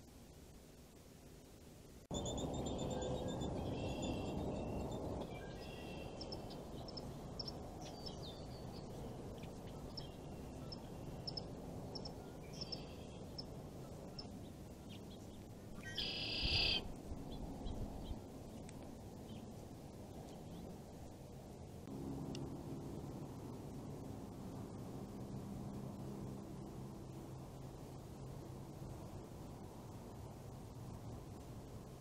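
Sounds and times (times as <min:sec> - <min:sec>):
low background hiss: 0:00.0 - 0:32.0
birds chirping and whistling: 0:02.2 - 0:11.4, 0:15.8 - 0:16.9
harsh bird call: 0:15.8 - 0:16.9.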